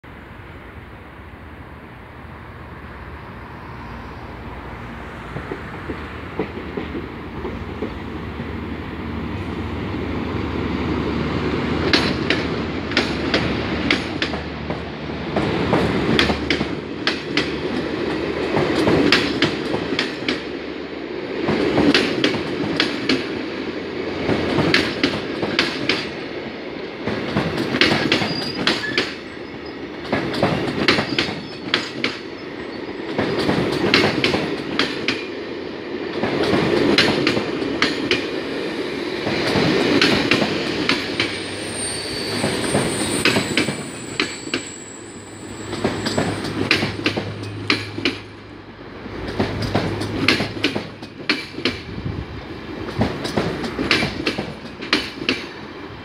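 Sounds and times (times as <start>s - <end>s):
train rumble: 0.0s - 56.0s
wheels clicking over rail joints: 11.8s - 20.5s, 24.2s - 26.2s, 27.0s - 29.2s, 33.1s - 35.4s, 39.2s - 41.4s, 45.7s - 48.4s, 49.0s - 52.0s, 52.8s - 55.6s.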